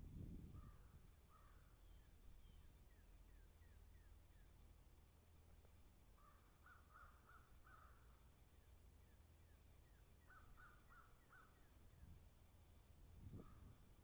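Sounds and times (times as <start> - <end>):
small birds chirping: 0.0 - 4.8, 5.5 - 14.0
distant crow cawing: 0.6 - 1.7, 6.2 - 8.1, 10.2 - 11.6, 13.4 - 13.7.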